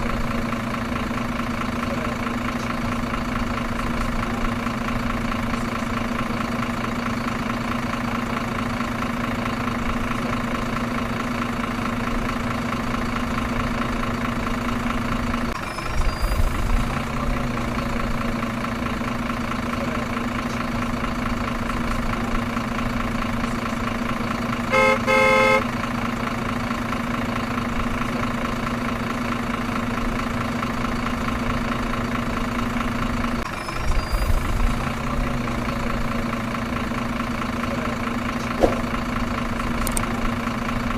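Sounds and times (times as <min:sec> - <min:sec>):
truck engine idling: 0:00.0 - 0:40.9
truck horn toot: 0:24.6 - 0:25.8.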